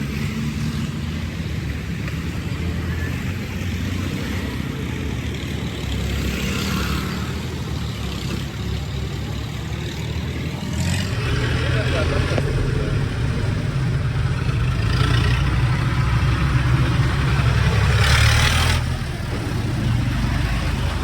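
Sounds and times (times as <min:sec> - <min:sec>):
tractor engine droning: 0:08.8 - 0:21.0.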